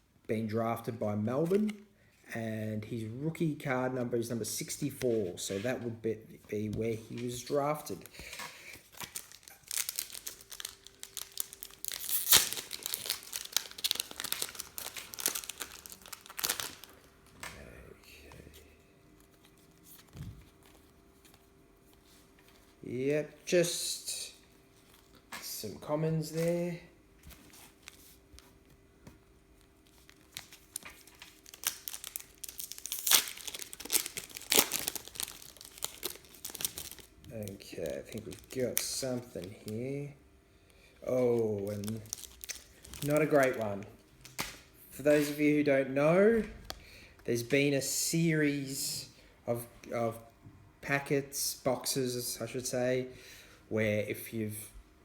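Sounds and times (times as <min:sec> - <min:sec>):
trading cards rustling and clicking: 0:06.6 - 0:17.6, 0:29.6 - 0:39.8
foil wrapper tearing and crinkling: 0:08.8 - 0:17.3, 0:29.6 - 0:39.8, 0:41.4 - 0:44.6.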